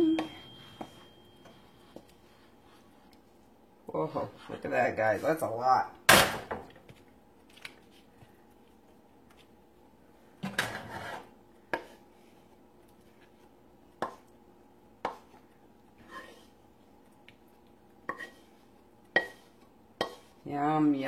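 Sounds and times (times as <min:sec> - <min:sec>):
utensil scraping a plate: 0:10.6 - 0:11.3, 0:16.0 - 0:16.6, 0:18.1 - 0:18.6.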